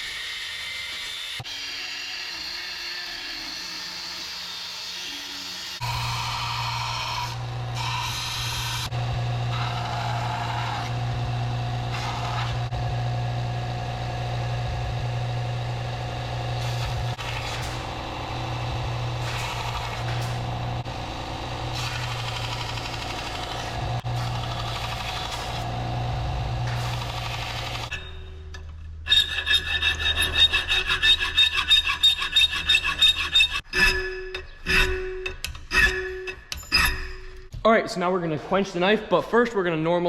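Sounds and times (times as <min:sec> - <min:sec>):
steel grinding on sanding belt: 0:02.2 - 0:08.9, 0:29.1 - 0:33.6
belt sander motor hum: 0:05.3 - 0:27.9.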